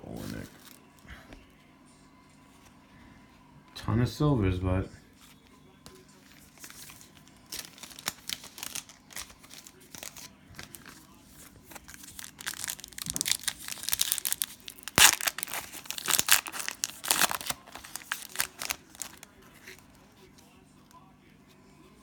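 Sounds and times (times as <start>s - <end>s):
cellophane wrapper crinkling and tearing: 6.4s - 19.8s.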